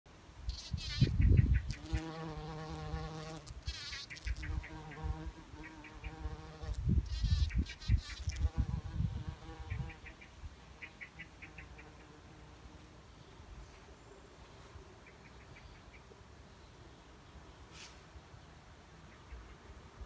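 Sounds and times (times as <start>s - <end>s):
insect-like buzzing: 0.5s - 10.2s.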